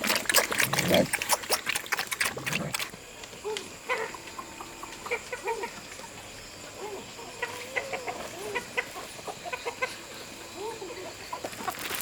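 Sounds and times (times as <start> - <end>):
chickens clucking: 3.7 - 11.9.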